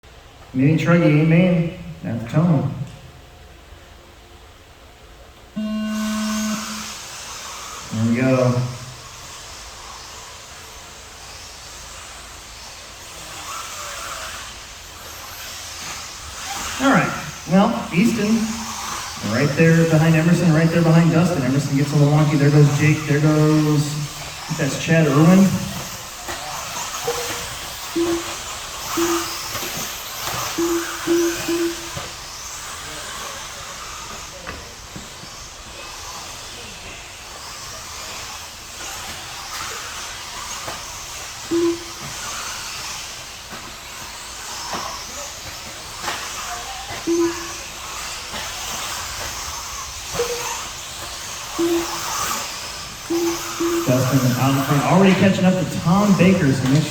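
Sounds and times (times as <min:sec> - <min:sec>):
short steady beep: 0:05.6 - 0:07.0, 0:16.9 - 0:26.1, 0:27.0 - 0:32.1, 0:41.5 - 0:42.1, 0:47.1 - 0:47.7, 0:50.1 - 0:50.7, 0:51.4 - 0:52.4, 0:53.1 - 0:56.9
small rc cars racing: 0:05.6 - 0:56.9.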